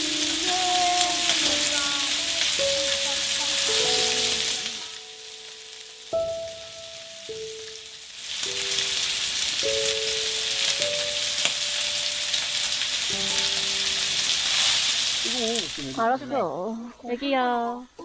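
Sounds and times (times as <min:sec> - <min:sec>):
food sizzling on a grill: 0:00.0 - 0:16.3
simple background melody: 0:00.0 - 0:16.6.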